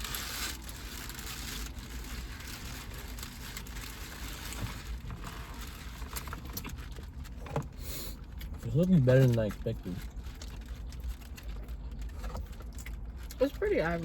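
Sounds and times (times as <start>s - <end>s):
chewing a sandwich: 0.0s - 13.6s.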